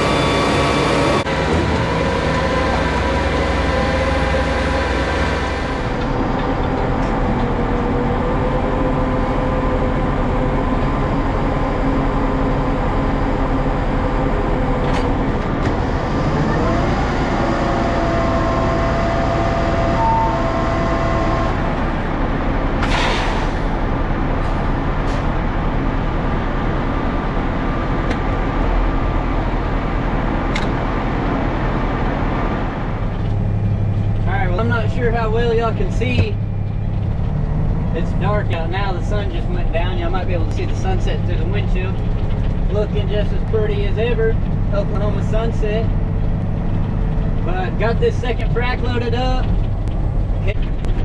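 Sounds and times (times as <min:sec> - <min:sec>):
diesel engine and road noise: 0:00.0 - 0:51.0
short hiss: 0:22.8 - 0:23.7.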